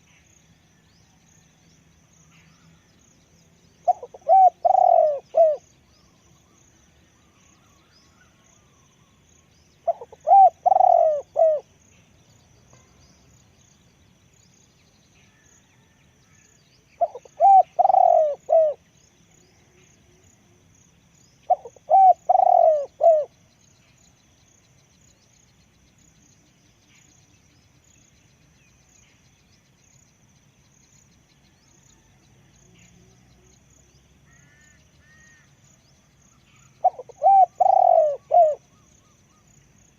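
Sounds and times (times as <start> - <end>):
faint high chirping: 0.0 - 39.9
dove cooing: 3.8 - 5.6, 9.8 - 11.7, 17.0 - 18.8, 21.5 - 23.3, 36.7 - 38.8.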